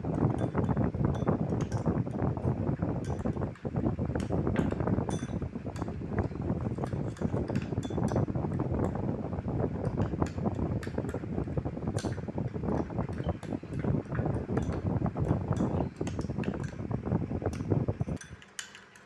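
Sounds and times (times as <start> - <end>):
spoon clinking against container: 0.2 - 2.1, 4.2 - 5.9, 18.1 - 19.0.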